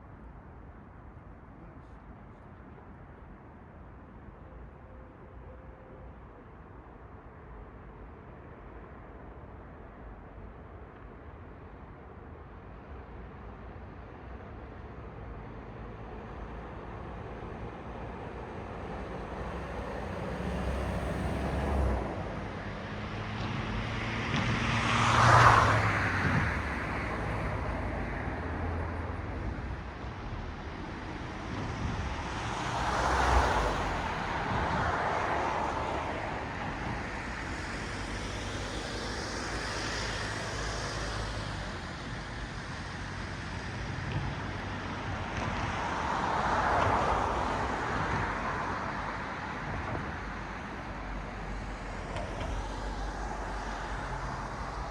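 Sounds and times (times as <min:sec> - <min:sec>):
background traffic: 0:00.0 - 0:54.9
cars passing: 0:18.6 - 0:54.9.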